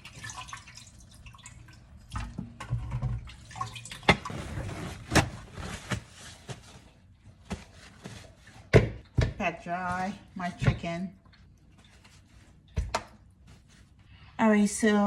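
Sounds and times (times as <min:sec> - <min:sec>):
tap water running into sink: 0:00.0 - 0:04.3
knocks and splashes against sink: 0:02.1 - 0:04.4, 0:08.7 - 0:09.4, 0:12.7 - 0:13.2.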